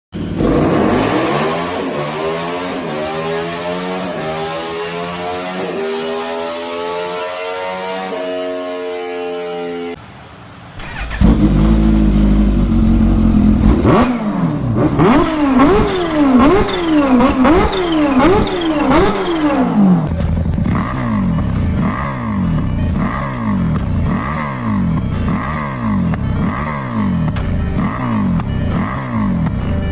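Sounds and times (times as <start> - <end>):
motorcycle engine revving: 0.2 - 9.2, 10.8 - 29.9
choppier exhaust note revving: 11.0 - 29.9.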